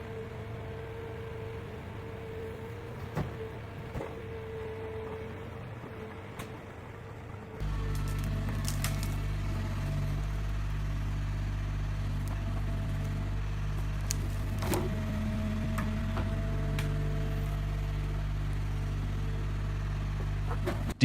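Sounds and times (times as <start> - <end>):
heavy machine diesel engine running: 0.0 - 21.0.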